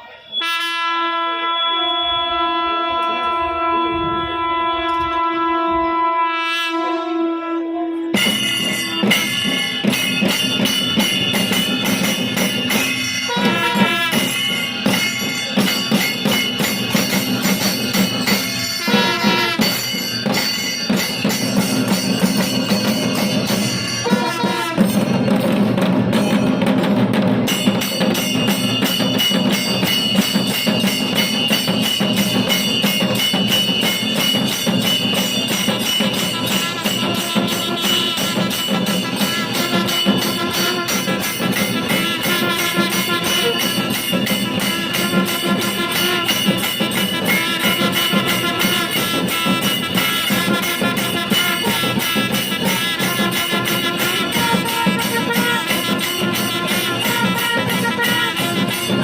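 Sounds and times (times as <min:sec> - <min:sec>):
percussion ensemble drumming: 0:08.0 - 0:59.0
sustained ringing tones: 0:08.2 - 0:25.6, 0:27.5 - 0:57.0.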